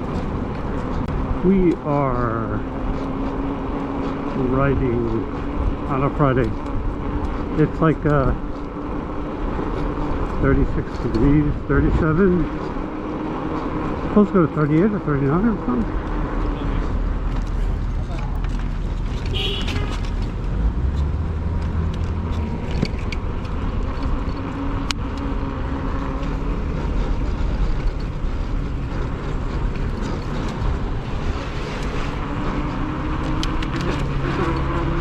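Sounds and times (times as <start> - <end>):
cars passing: 0.0 - 35.0
tyre noise: 15.8 - 35.0.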